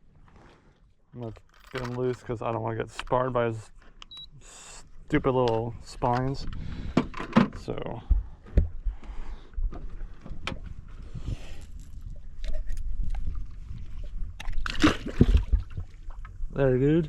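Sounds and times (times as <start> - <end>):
knocks and clicks in a boat: 5.4 - 11.0.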